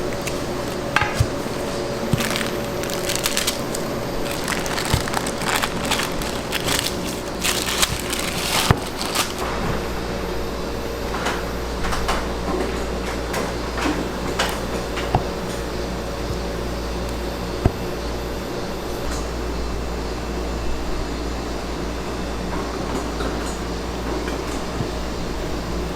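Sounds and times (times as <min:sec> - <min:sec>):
crackly crunching and rustling: 0:00.0 - 0:19.4
kitchen equipment hum: 0:00.0 - 0:25.9.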